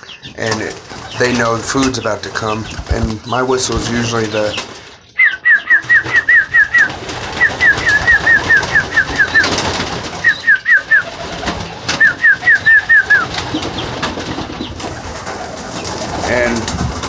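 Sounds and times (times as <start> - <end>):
pigeons cooing: 0.0 - 17.0
person whistling chirping notes: 5.2 - 9.5, 12.0 - 13.2.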